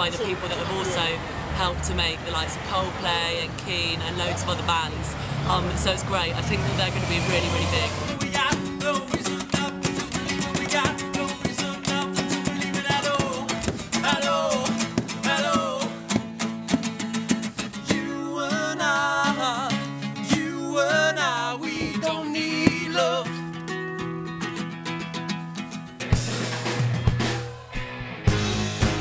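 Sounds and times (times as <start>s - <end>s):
held bass notes: 3.8s - 19.5s, 25.9s - 29.0s
strummed guitar: 6.1s - 29.0s
person singing with vibrato: 6.6s - 16.1s, 17.8s - 23.4s.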